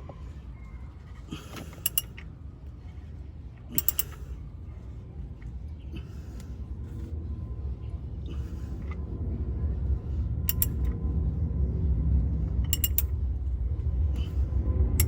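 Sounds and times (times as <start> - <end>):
steady low rumble: 0.0 - 15.0
sharp mechanical clicks: 3.8 - 4.2, 10.5 - 10.9, 12.7 - 13.1.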